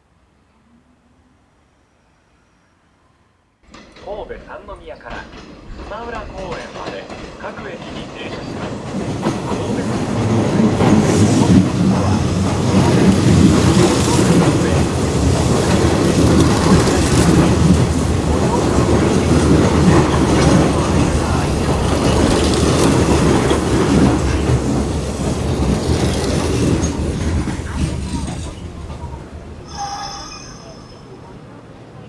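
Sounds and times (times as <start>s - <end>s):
electric train rumbling: 0.0s - 32.0s
wheels clacking over rail joints: 3.6s - 29.3s.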